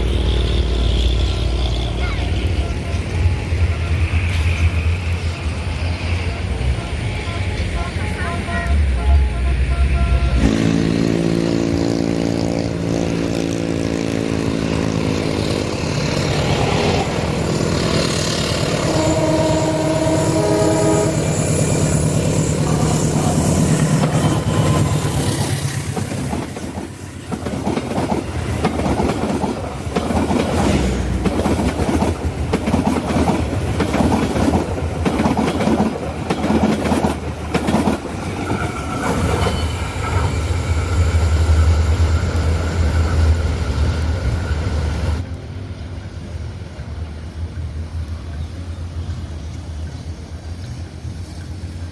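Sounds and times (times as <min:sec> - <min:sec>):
locomotive engine passing: 0:00.0 - 0:51.9
train horn blasts: 0:06.2 - 0:14.1, 0:18.5 - 0:25.4
train wheels clacking on rails: 0:10.4 - 0:45.2.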